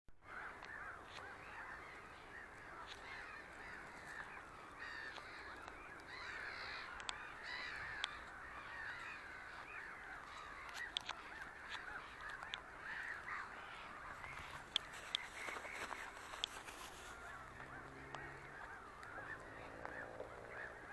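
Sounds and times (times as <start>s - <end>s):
chorus of animal calls: 0.2s - 20.9s
sharp ticks: 10.6s - 12.6s.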